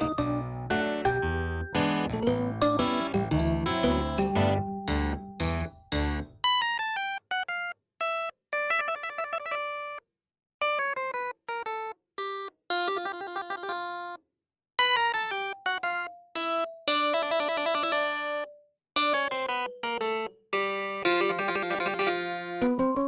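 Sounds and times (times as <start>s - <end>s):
strummed chords: 0.0s - 6.4s
plucked melody notes: 0.0s - 7.0s, 14.8s - 23.0s.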